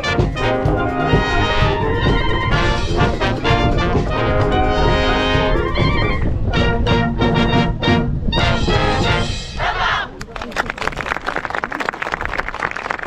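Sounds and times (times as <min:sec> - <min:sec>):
samba drums: 0:00.0 - 0:06.4
brass chords: 0:00.0 - 0:09.8
wind band playing samba: 0:00.0 - 0:10.1
wind rumble on microphone: 0:00.0 - 0:11.2.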